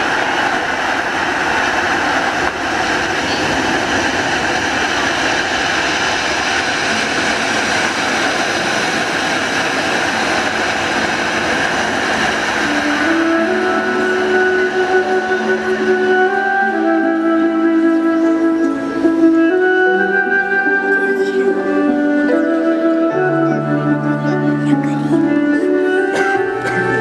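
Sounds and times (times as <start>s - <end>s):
music: 9.7s - 27.0s.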